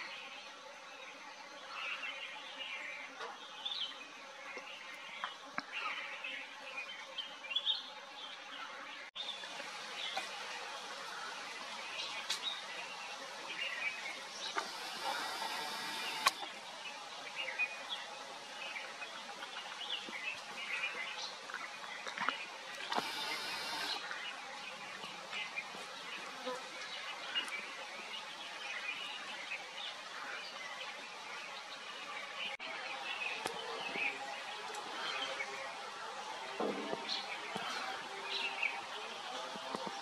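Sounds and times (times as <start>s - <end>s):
outdoor background hiss: 0.0s - 40.0s
small birds chirping: 11.2s - 30.9s.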